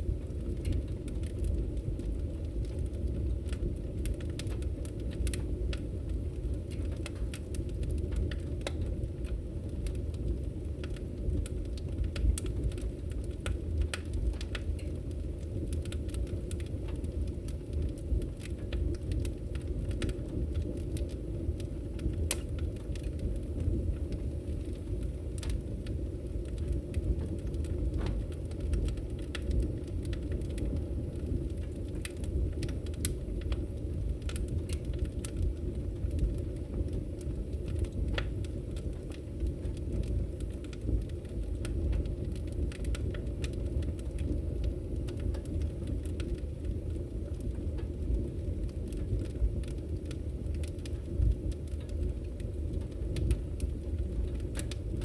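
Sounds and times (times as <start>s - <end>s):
campfire crackling and popping: 0.0s - 55.0s
low rumble of fire: 0.0s - 55.0s.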